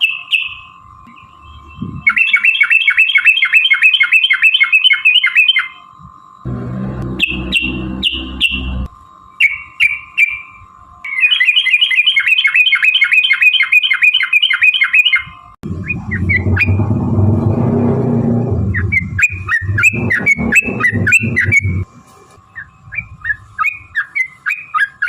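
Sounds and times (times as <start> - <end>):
loud low rumbling noise: 6.4 - 8.9, 15.6 - 21.9
bird calling: 7.0 - 16.8, 18.7 - 21.8.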